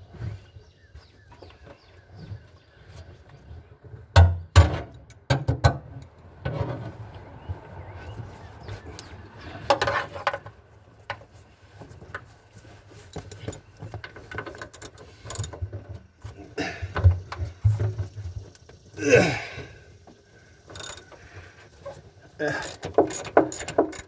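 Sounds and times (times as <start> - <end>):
hand tool clicks and knocks: 14.7 - 15.5, 20.8 - 21.0, 22.6 - 24.0.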